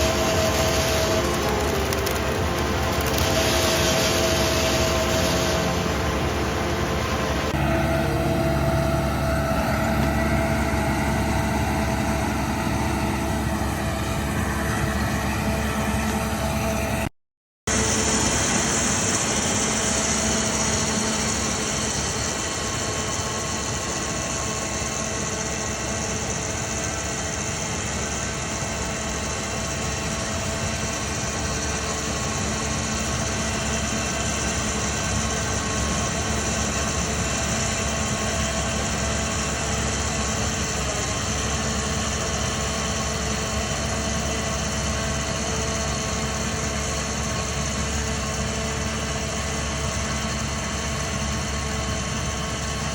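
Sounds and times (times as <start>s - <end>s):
engine running steadily: 0.0s - 17.1s, 17.7s - 52.9s.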